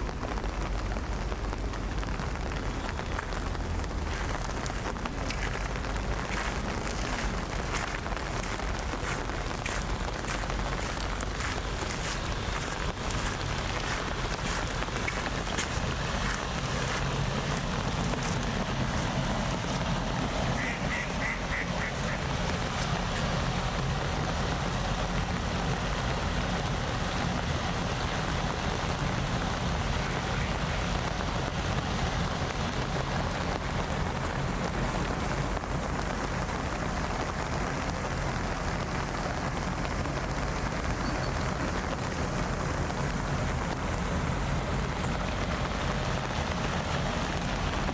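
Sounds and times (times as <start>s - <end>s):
rain: 0.0s - 47.9s
raindrops ticking: 0.0s - 47.9s
wind: 0.0s - 47.9s.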